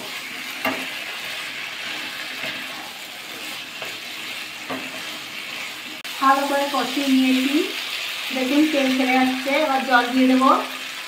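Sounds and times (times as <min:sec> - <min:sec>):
spatula scraping pan: 0:00.0 - 0:06.1
food sizzling in oil: 0:00.0 - 0:11.0.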